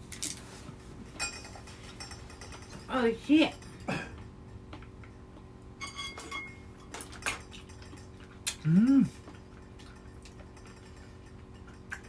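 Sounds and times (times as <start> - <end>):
dishes and cutlery clinking: 1.2 - 4.8, 5.8 - 8.2, 9.3 - 12.0
person humming: 8.5 - 9.2.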